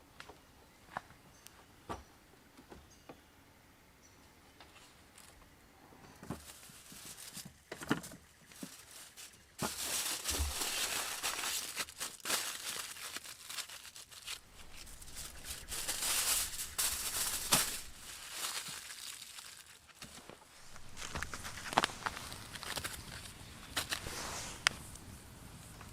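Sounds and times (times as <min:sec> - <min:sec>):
crinkling and rustling: 0:06.1 - 0:25.9.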